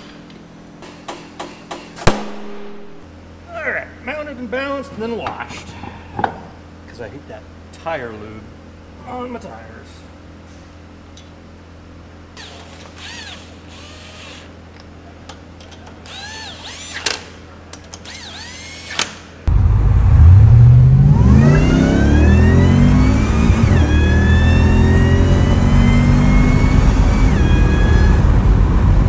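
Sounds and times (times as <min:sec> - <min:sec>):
impact wrench whirring: 0:12.4 - 0:14.6, 0:16.0 - 0:19.3, 0:21.6 - 0:28.2
supercharger whine: 0:18.0 - 0:29.0
car engine accelerating hard: 0:19.5 - 0:29.0.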